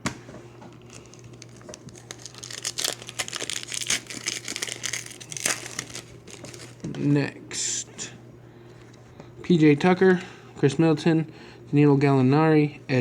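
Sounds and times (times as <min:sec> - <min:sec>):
plastic wrapper crinkling: 0:00.7 - 0:06.9.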